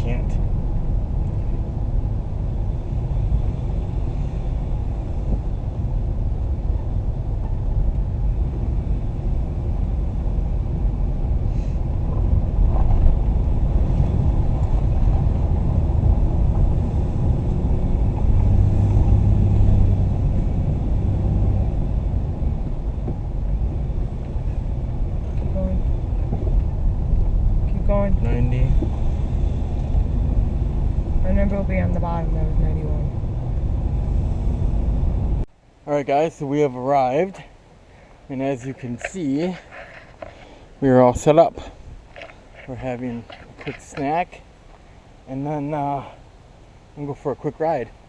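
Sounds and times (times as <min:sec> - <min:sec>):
low engine hum: 0:00.0 - 0:35.8
van engine and road noise: 0:00.0 - 0:48.0.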